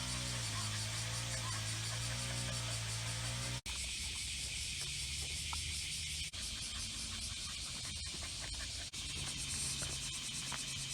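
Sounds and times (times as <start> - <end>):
insect chorus: 0.0 - 10.9.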